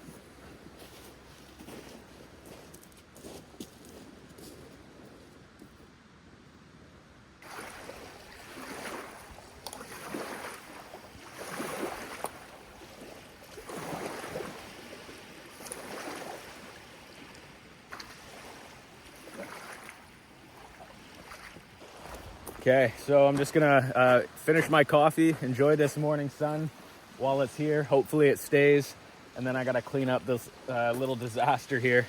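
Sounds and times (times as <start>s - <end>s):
waves washing onto shore: 7.4s - 32.0s.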